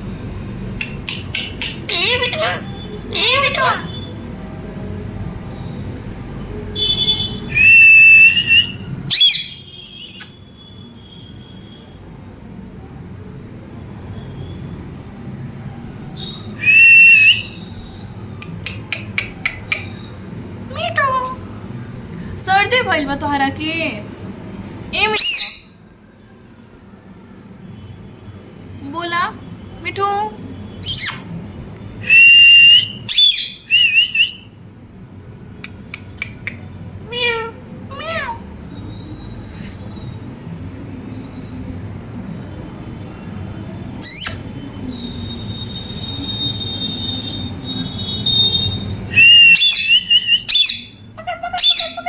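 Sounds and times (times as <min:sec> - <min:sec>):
parrot whistle: 0:00.2 - 0:04.1, 0:06.8 - 0:11.9, 0:16.2 - 0:20.2, 0:25.1 - 0:25.8, 0:30.8 - 0:31.3, 0:32.0 - 0:34.5, 0:35.6 - 0:39.4, 0:44.0 - 0:52.0
parrot squawk: 0:00.8 - 0:04.1, 0:09.1 - 0:10.4, 0:18.6 - 0:20.1, 0:25.1 - 0:25.8, 0:32.8 - 0:34.3, 0:35.9 - 0:38.4, 0:44.0 - 0:44.4, 0:49.2 - 0:52.0
sharp clicks: 0:35.6 - 0:36.7.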